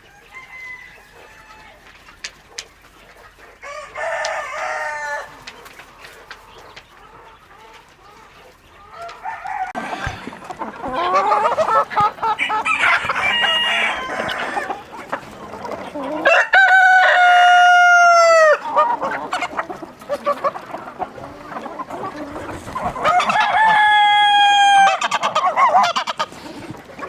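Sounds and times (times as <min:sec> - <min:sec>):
rooster crowing: 0:00.0 - 0:01.8, 0:03.6 - 0:05.3, 0:09.0 - 0:10.3, 0:12.4 - 0:14.8, 0:16.2 - 0:18.6, 0:23.0 - 0:25.1
chickens clucking: 0:00.0 - 0:27.0.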